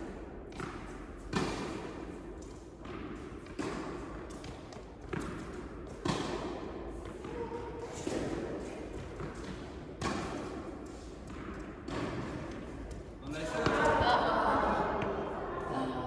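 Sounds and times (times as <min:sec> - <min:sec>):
tennis ball struck by rackets: 0:00.5 - 0:02.1, 0:02.8 - 0:13.0
tennis ball bouncing on court: 0:00.5 - 0:14.0.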